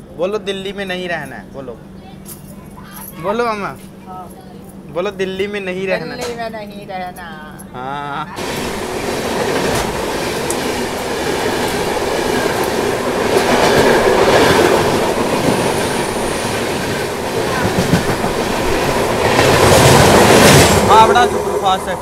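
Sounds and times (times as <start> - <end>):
train wheels rumbling and rattling: 8.4 - 22.0.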